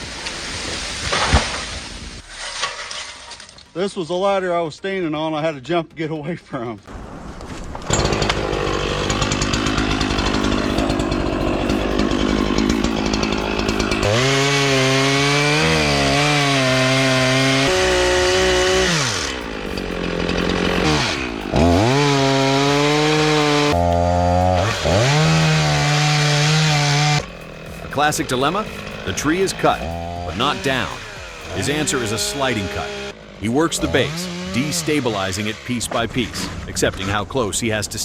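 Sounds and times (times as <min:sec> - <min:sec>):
chainsaw cutting wood: 0:07.6 - 0:37.2
chainsaw revving: 0:07.7 - 0:36.4.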